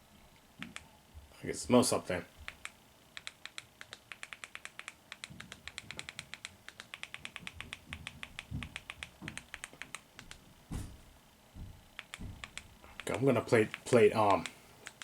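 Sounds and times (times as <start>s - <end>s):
keyboard typing clicks: 2.4s - 10.4s, 12.0s - 15.0s
soft low thumps: 7.5s - 9.4s, 10.2s - 12.8s.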